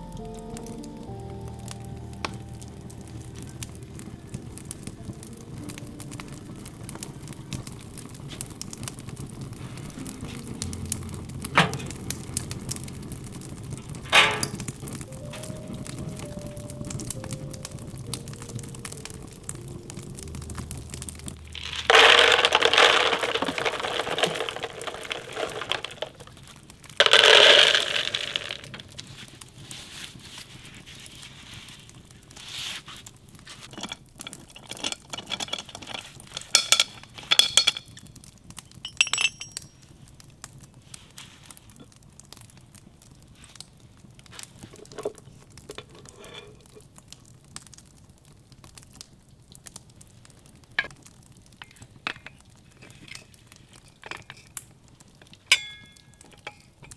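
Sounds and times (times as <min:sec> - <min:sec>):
objects rustling and scraping: 0:09.2 - 0:16.5, 0:19.2 - 0:38.0, 0:44.2 - 0:47.0, 0:51.6 - 0:56.9
dishes clinking: 0:11.5 - 0:12.1, 0:14.0 - 0:15.5, 0:21.5 - 0:26.3, 0:33.8 - 0:37.9, 0:38.7 - 0:39.7, 0:53.8 - 0:54.6, 0:55.3 - 0:56.9.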